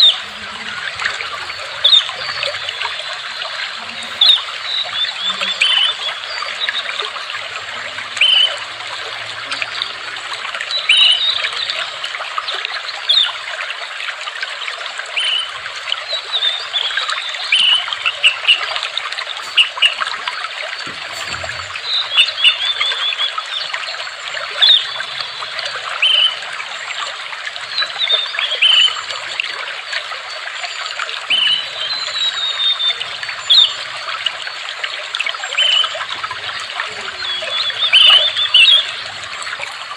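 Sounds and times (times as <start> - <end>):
small birds chirping: 0.0 - 12.0, 15.2 - 26.9, 35.4 - 39.9
water trickling: 0.0 - 39.9.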